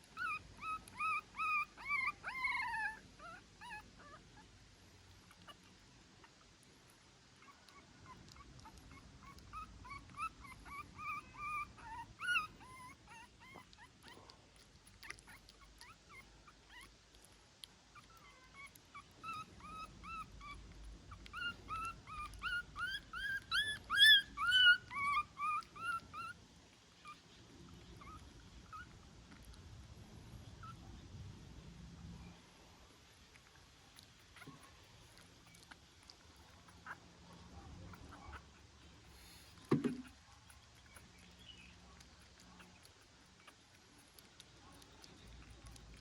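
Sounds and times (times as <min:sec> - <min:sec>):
puppy whimpering: 0:00.0 - 0:04.5, 0:07.4 - 0:17.1, 0:17.9 - 0:26.4, 0:27.8 - 0:29.5, 0:30.6 - 0:30.8, 0:34.0 - 0:46.0.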